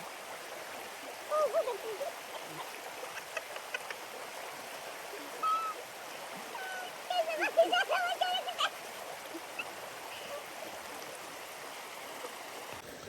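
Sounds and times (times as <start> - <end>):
stream water flowing: 0.0 - 13.0
short wavering calls: 5.4 - 5.8.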